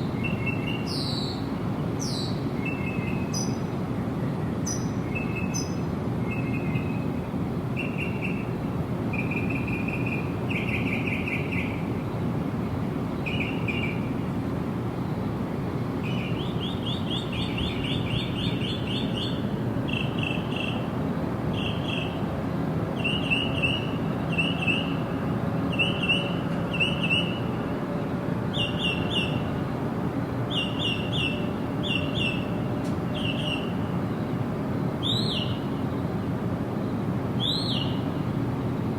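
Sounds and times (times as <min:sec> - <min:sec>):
small birds chirping: 0:00.0 - 0:03.7, 0:04.6 - 0:07.1, 0:07.8 - 0:08.5, 0:13.2 - 0:14.1, 0:16.0 - 0:20.9, 0:21.5 - 0:22.2, 0:23.0 - 0:25.0, 0:28.5 - 0:29.5, 0:30.5 - 0:33.8, 0:35.0 - 0:35.8, 0:37.4 - 0:38.3.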